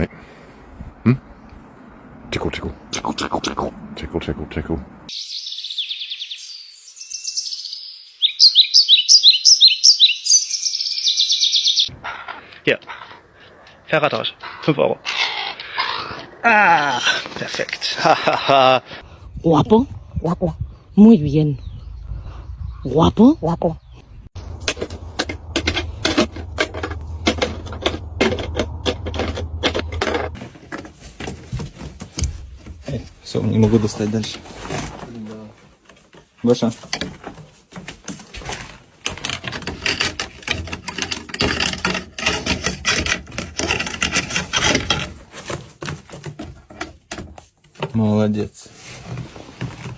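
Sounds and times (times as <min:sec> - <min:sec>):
bird singing: 0:05.1 - 0:11.9, 0:20.2 - 0:25.1
steady low hum: 0:24.1 - 0:30.4.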